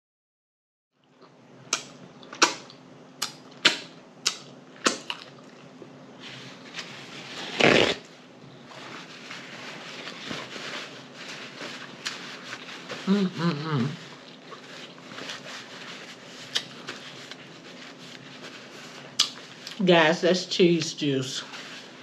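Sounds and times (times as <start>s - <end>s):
chewing: 1.0s - 6.0s, 14.0s - 18.2s.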